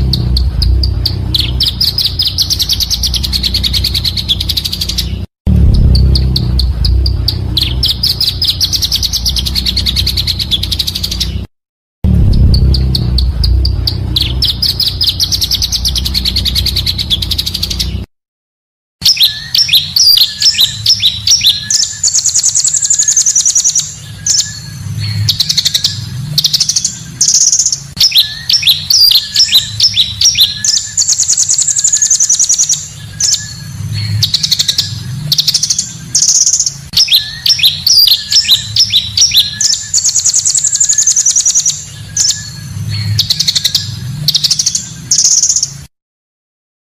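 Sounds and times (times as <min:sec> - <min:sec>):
bird trills and chirps: 0:00.0 - 0:11.5, 0:12.2 - 0:18.1, 0:19.0 - 0:45.9.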